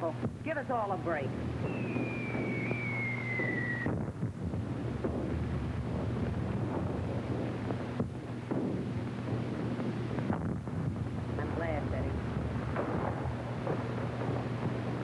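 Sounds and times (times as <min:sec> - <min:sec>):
film soundtrack hiss and hum: 0:00.0 - 0:15.0
rumbling bombardment: 0:00.2 - 0:15.0
artillery shell whistle: 0:01.6 - 0:04.0.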